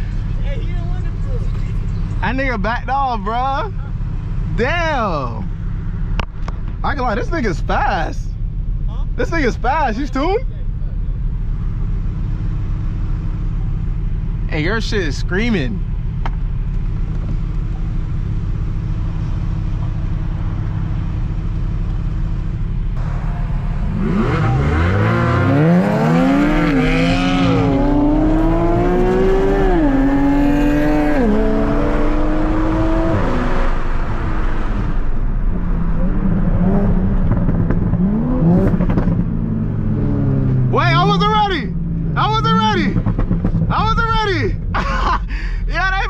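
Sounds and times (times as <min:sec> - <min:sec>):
car engine accelerating and shifting: 0:09.2 - 0:44.9.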